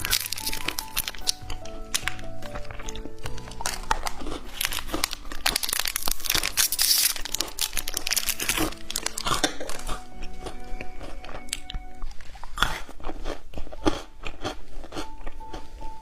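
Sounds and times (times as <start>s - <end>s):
plastic packaging crinkling: 0.0s - 13.8s.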